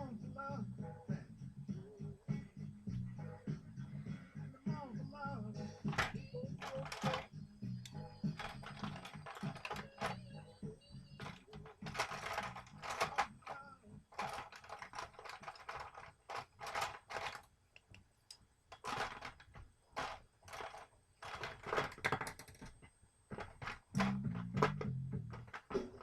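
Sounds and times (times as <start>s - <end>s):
small hard objects clattering: 5.9s - 7.3s, 8.2s - 10.4s, 11.2s - 17.5s, 18.7s - 26.0s.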